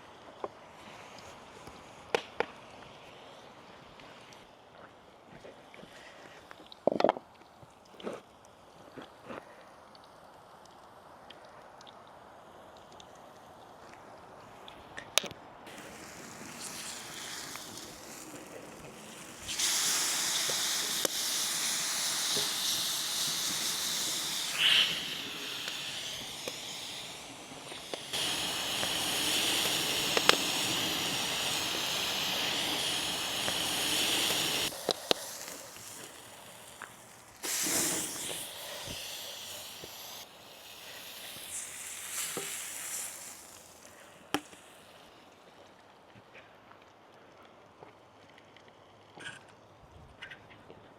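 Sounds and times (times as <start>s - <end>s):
sharp pops: 15.7s - 45.2s
food sizzling in a pan: 15.7s - 45.3s.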